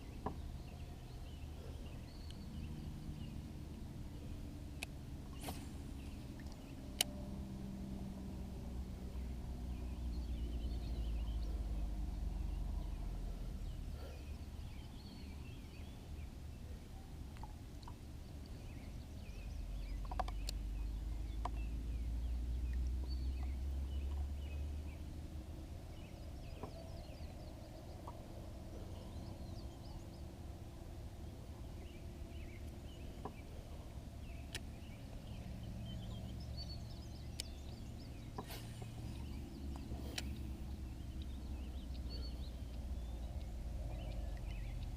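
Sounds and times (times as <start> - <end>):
low rumble: 0.0 - 17.6
faint bird chirps: 31.6 - 44.9
light clicks: 39.7 - 40.5.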